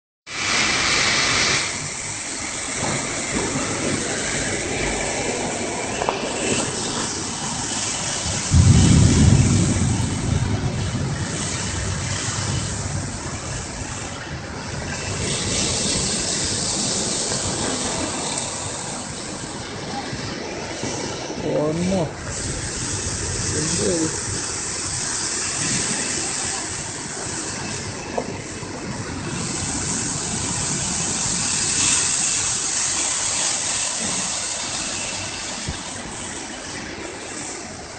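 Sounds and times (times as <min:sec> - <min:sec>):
heavy rain hissing: 0:00.3 - 0:37.9
low rumble: 0:02.8 - 0:25.2.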